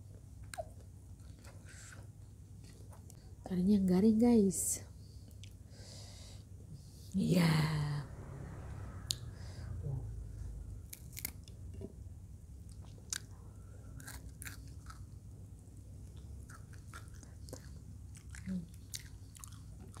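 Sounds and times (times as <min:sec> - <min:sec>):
crunchy chewing: 0:10.8 - 0:11.6, 0:12.7 - 0:15.3, 0:16.0 - 0:20.0.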